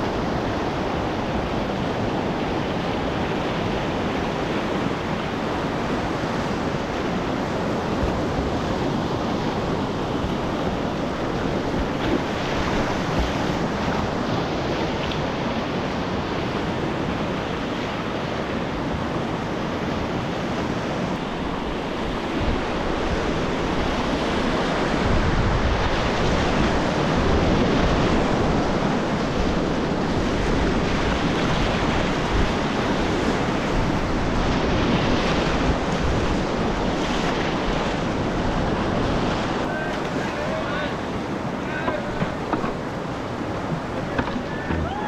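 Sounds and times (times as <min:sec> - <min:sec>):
whitewater rapids rushing: 0:00.0 - 0:45.0
wind buffeting microphone: 0:18.6 - 0:45.0.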